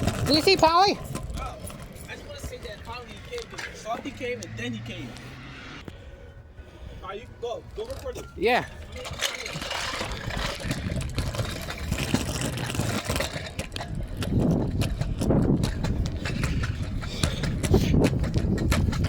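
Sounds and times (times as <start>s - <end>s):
street noise: 0.0s - 19.0s
vehicle engine running: 0.4s - 6.5s.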